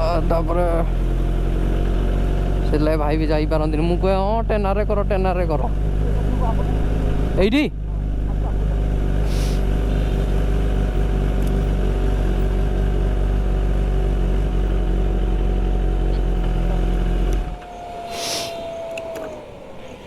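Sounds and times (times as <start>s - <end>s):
motorcycle engine running: 0.0s - 20.0s
short hiss: 9.3s - 10.3s, 18.0s - 19.0s
thin whine sinking in pitch: 17.1s - 20.0s.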